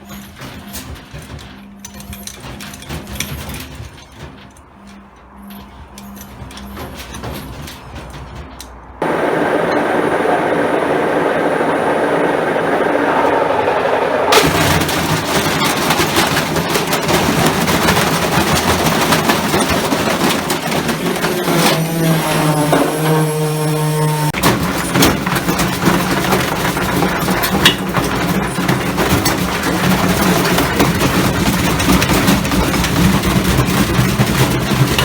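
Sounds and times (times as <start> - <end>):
washing machine drum banging: 6.8 - 35.0
washing machine motor whining: 9.0 - 33.4.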